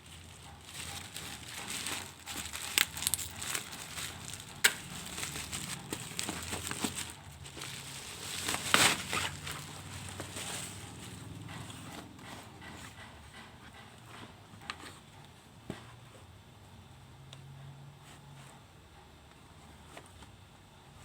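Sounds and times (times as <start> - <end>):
plastic packaging crinkling: 0.0 - 11.3
packaging clicks: 0.1 - 10.9.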